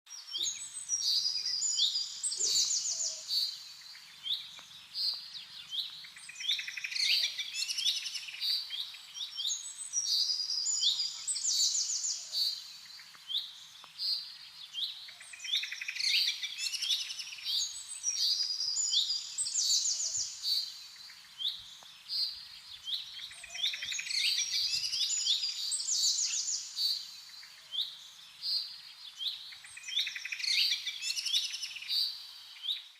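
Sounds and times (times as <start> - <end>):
birds chirping and trilling: 0.1 - 32.9.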